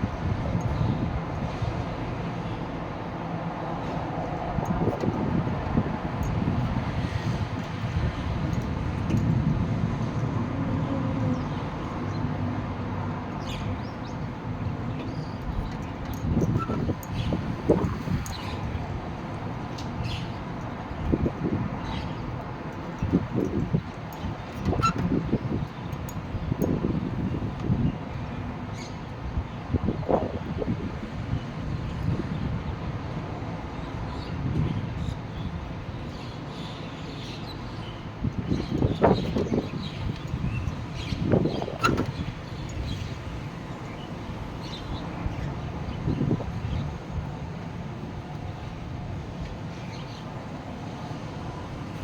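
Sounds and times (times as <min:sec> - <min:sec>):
storm wind gusting: 0:00.0 - 0:11.8
wind buffeting microphone: 0:00.0 - 0:52.0.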